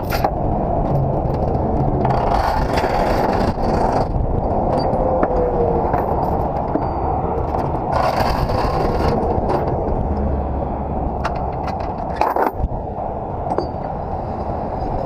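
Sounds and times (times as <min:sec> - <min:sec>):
truck engine rumble: 0:00.0 - 0:15.0
sharp clicks and knocks: 0:11.2 - 0:12.7.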